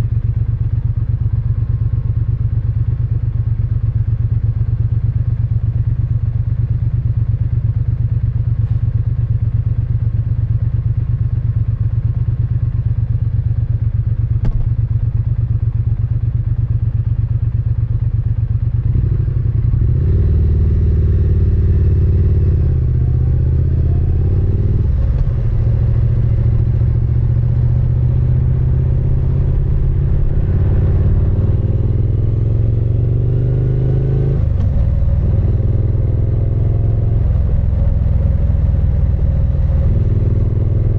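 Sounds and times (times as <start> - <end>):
motorcycle engine revving and accelerating: 18.8 - 40.9.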